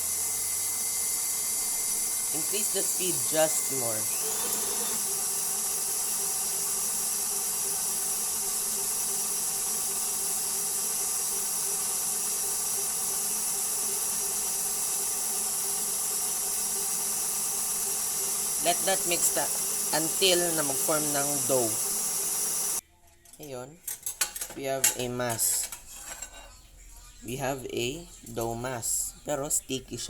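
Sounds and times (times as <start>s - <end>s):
electric mixer whirring: 0.0s - 22.8s.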